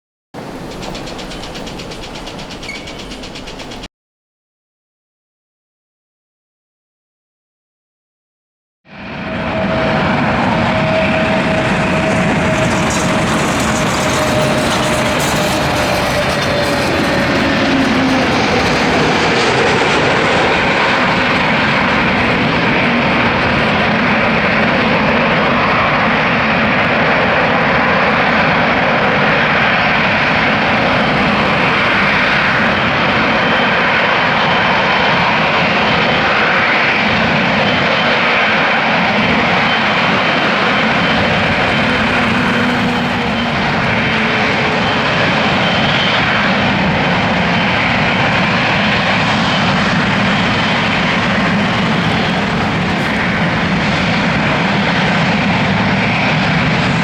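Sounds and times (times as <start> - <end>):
jet engines roaring: 0.4 - 3.9, 8.9 - 57.0
faint high whine: 38.9 - 48.6.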